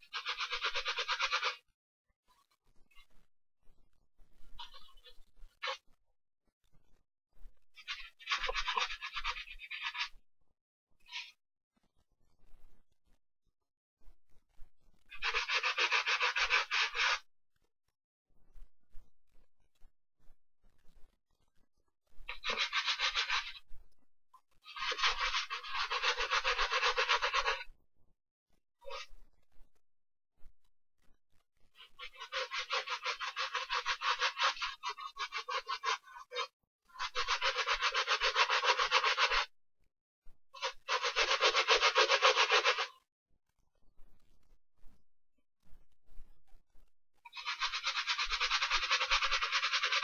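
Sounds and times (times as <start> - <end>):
brush scrubbing a sneaker: 0.0 - 1.6, 8.2 - 10.1, 15.2 - 17.2, 22.3 - 23.6, 24.7 - 27.6, 31.9 - 39.5, 40.6 - 43.0, 47.3 - 50.0.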